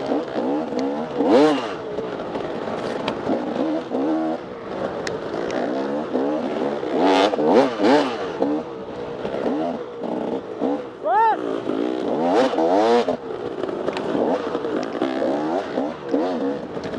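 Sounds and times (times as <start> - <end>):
dirt bike engine revving: 0.0 - 16.9.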